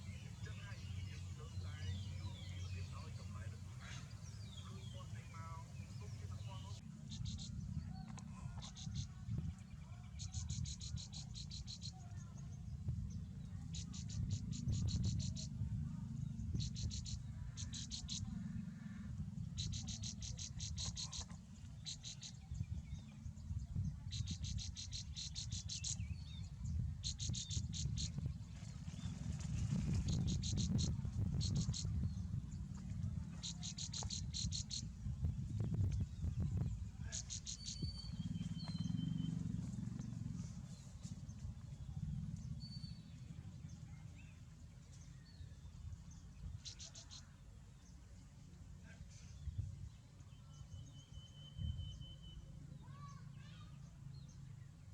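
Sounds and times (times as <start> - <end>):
steady low rumble: 0.0 - 50.2
faint small bird chirps: 3.8 - 12.6, 13.4 - 18.3, 19.6 - 29.1, 29.9 - 32.4, 33.3 - 45.7, 46.4 - 47.4, 48.8 - 54.8
baby birds begging calls: 16.6 - 19.0, 19.6 - 22.4, 30.1 - 32.1, 33.4 - 35.0, 37.0 - 39.2.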